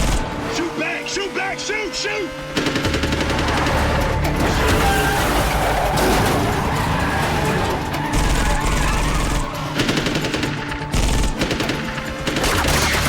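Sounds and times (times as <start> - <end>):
action film score: 0.0 - 13.0
automatic gunfire bursts: 8.7 - 13.0.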